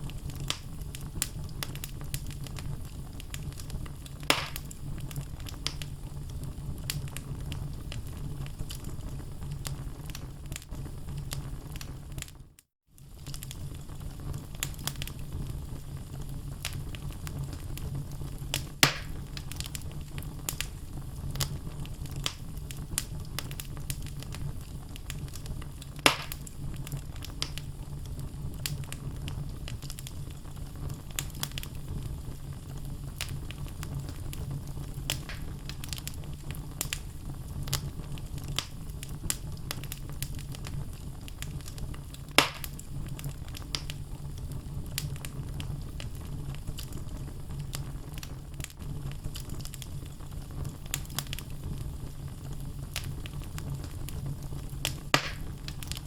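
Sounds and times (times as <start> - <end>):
loud fire pops: 0.0 - 12.4, 13.0 - 56.0
low rumble of flames: 0.0 - 56.0
logs crackling: 0.2 - 5.9, 18.5 - 27.7, 33.2 - 44.0, 54.8 - 56.0.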